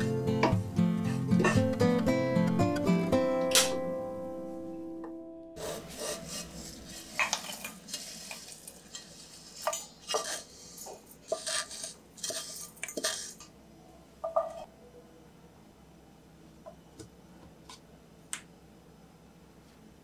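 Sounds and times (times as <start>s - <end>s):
utensil scraping frying pan: 0.4s - 1.8s, 5.6s - 13.5s.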